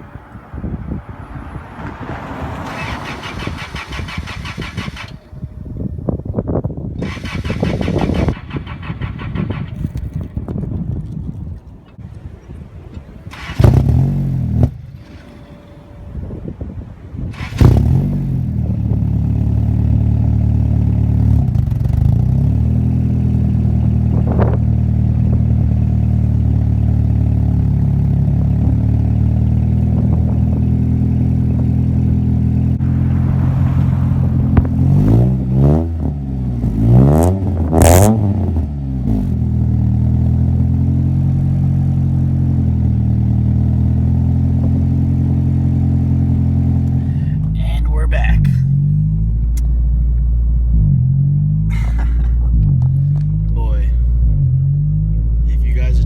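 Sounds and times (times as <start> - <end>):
car engine starting and idling: 0.0 - 56.0
car engine revving: 0.2 - 5.4, 13.2 - 16.2, 17.2 - 56.0
man talking: 47.5 - 48.7, 53.6 - 54.1, 55.5 - 56.0.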